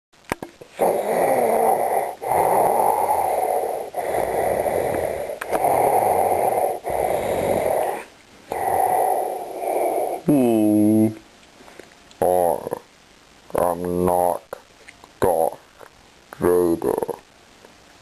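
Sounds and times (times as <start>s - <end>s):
mechanical respirator breathing: 0.6s - 10.3s.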